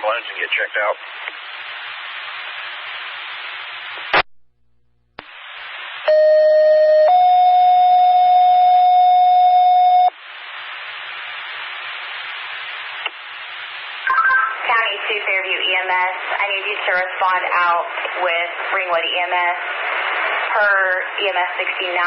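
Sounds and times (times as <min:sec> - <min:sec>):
radio scanner hiss: 0:00.0 - 0:04.3, 0:05.2 - 0:06.4, 0:09.6 - 0:22.0
two-tone pager tone: 0:06.1 - 0:10.1.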